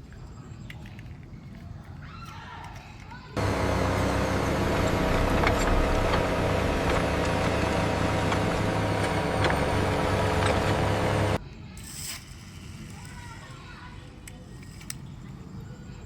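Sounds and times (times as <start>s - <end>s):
heavy engine idling: 3.4s - 11.4s.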